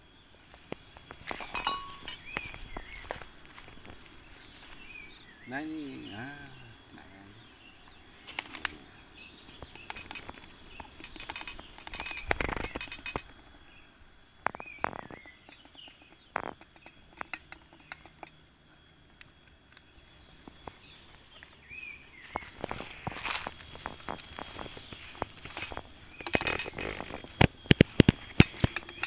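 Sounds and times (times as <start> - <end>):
birds chirping: 0.0 - 29.0
camping gear clicking and knocking: 1.0 - 3.1, 9.6 - 13.5, 14.5 - 18.4, 22.6 - 29.0.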